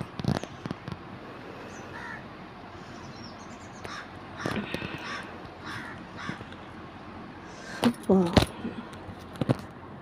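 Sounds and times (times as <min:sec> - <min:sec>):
bird cawing: 0:01.6 - 0:06.8.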